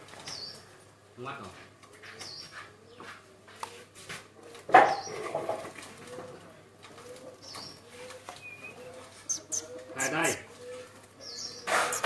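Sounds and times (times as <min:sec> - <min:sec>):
pigeons cooing: 0:03.8 - 0:12.0.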